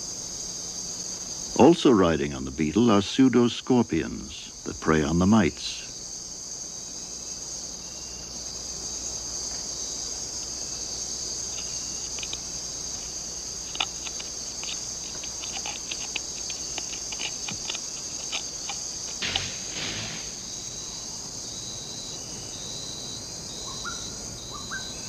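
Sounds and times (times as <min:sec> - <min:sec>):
insect chorus buzzing: 0:00.0 - 0:25.0
faint clicks and ticks: 0:13.6 - 0:19.4.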